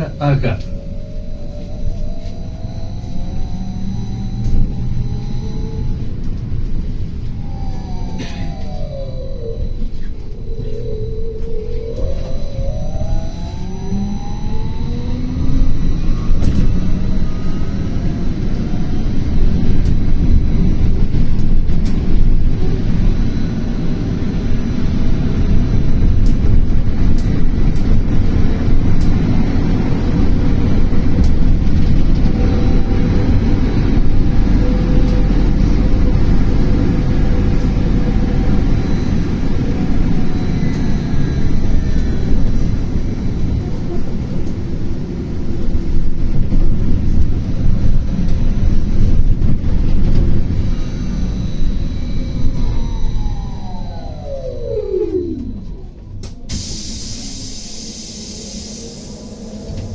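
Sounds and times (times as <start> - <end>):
low rumble of road noise: 0.0 - 59.9.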